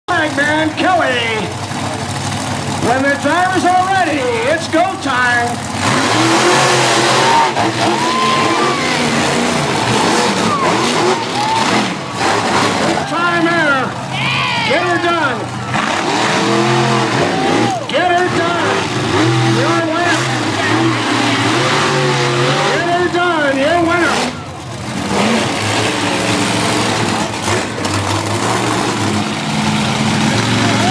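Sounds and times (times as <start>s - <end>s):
truck engines at full throttle: 0.0s - 30.9s
voices shouting: 5.9s - 28.3s, 30.3s - 30.9s.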